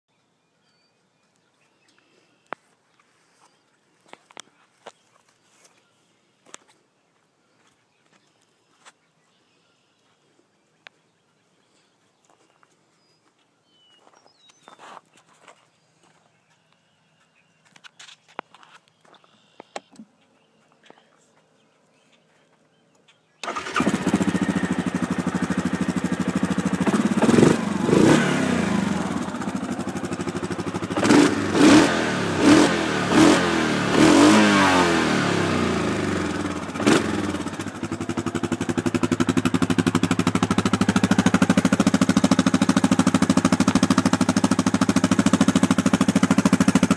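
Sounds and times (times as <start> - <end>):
atv engine starting and revving: 23.4 - 46.9.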